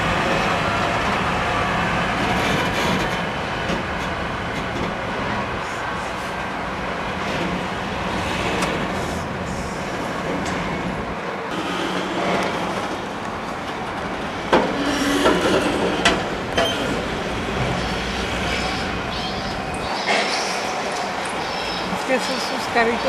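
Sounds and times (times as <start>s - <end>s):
heavy vehicles rumbling past: 0.0s - 23.0s.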